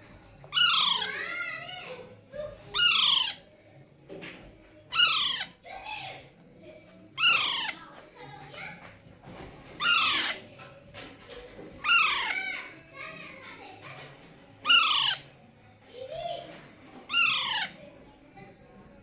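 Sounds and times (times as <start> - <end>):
soft parakeet calls: 0.5 - 1.5, 2.6 - 3.5, 4.9 - 5.7, 7.2 - 7.9, 9.7 - 10.5, 11.8 - 12.7, 14.6 - 15.3, 17.1 - 17.8
parakeet harsh calls: 0.5 - 1.6, 2.7 - 3.5, 4.9 - 5.7, 7.2 - 7.8, 9.8 - 10.5, 11.8 - 12.7, 14.6 - 15.3, 17.1 - 17.8.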